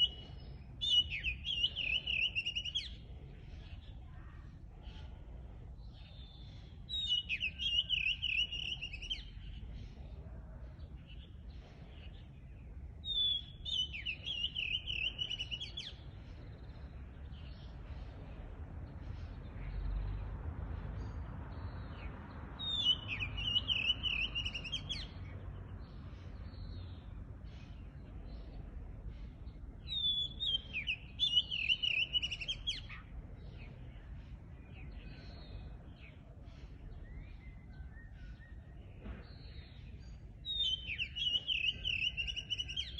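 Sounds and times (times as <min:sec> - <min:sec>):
faint bird chirps: 0:00.0 - 0:20.3, 0:25.9 - 0:42.9
songbird warbling: 0:06.9 - 0:09.5.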